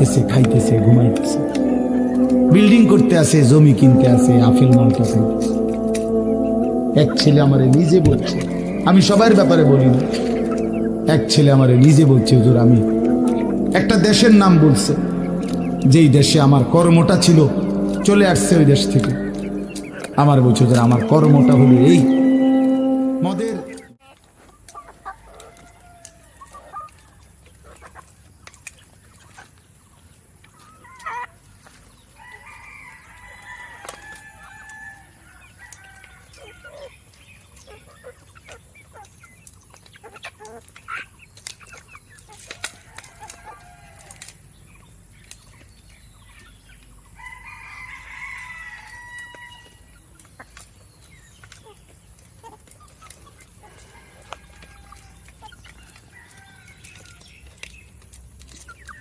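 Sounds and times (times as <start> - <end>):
chickens clucking: 0.0 - 59.0
young cockerel crowing: 24.9 - 27.0, 32.2 - 36.6, 42.5 - 44.3, 47.2 - 49.9.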